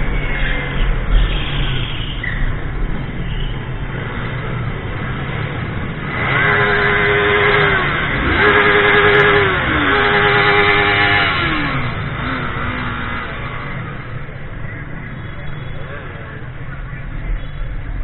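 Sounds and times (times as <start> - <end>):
motorcycle engine revving: 3.9 - 14.4.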